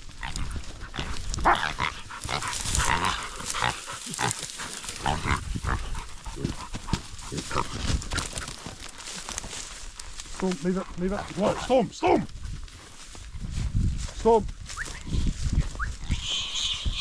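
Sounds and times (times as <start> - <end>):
wild pig squealing and grunting: 0.1 - 8.7, 10.9 - 12.2, 15.8 - 17.0.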